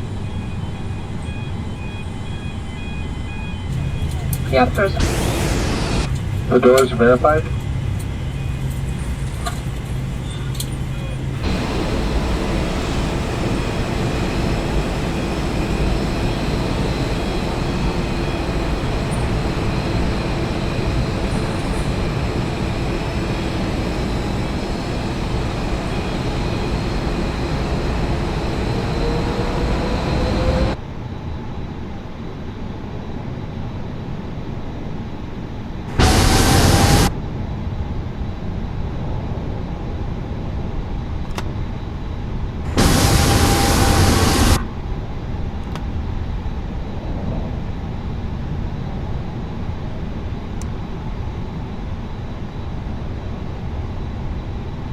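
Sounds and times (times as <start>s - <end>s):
faint steady whines: 0.0s - 54.9s
aircraft cabin noise: 3.6s - 30.8s, 35.9s - 37.1s, 42.7s - 44.6s
short loud burst: 3.7s - 6.9s, 35.9s - 37.1s, 42.7s - 44.6s.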